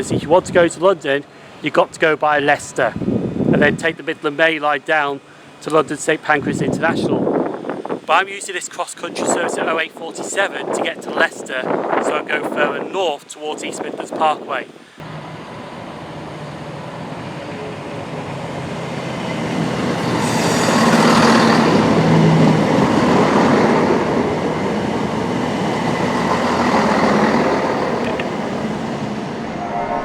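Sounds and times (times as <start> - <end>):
diesel train engine: 15.0 - 30.0
wheel and rail noise: 15.0 - 30.0.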